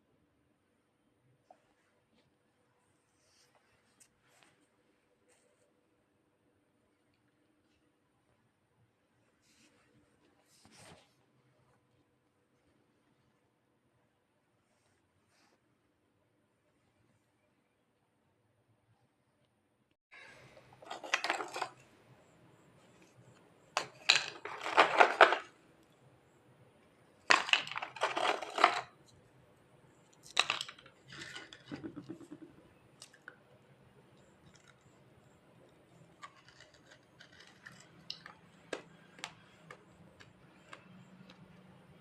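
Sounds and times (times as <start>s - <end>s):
crunching clay between teeth: 36.0s - 41.3s.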